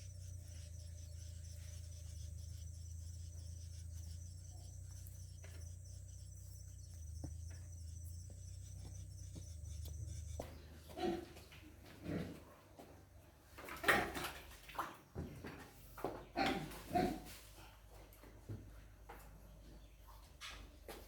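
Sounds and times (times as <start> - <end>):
insect chirring: 0.0 - 10.5
low steady hum: 0.0 - 11.9.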